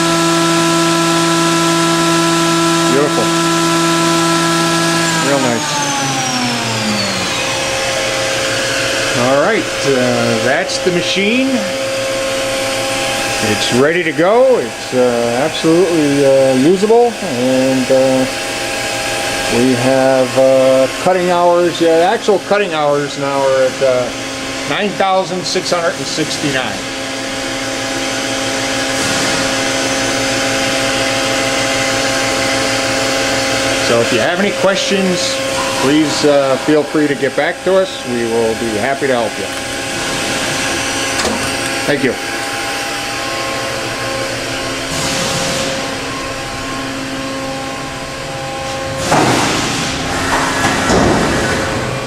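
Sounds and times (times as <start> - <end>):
machining center humming: 0.0 - 52.0
bursts of hissing: 49.0 - 50.1.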